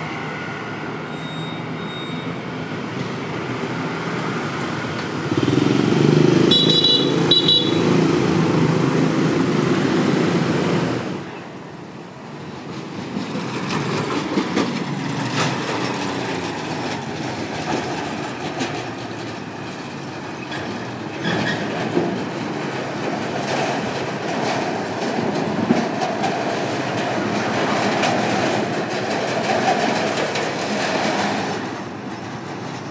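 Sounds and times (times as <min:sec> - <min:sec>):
motorbikes rumbling: 0:00.0 - 0:32.9
horn beeps: 0:01.1 - 0:02.4, 0:06.5 - 0:08.2
steel bridge deck clattering: 0:05.5 - 0:09.6, 0:12.5 - 0:32.9.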